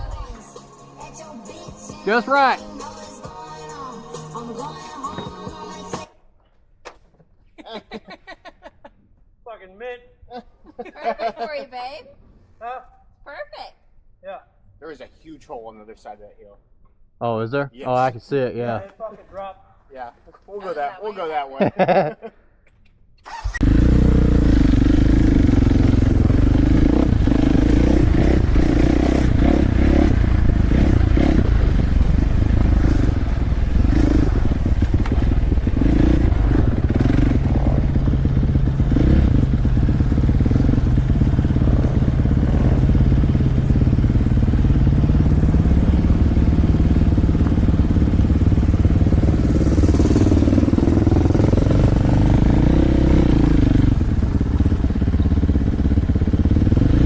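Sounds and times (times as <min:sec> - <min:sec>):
dirt bike engine running: 0:23.4 - 0:57.0.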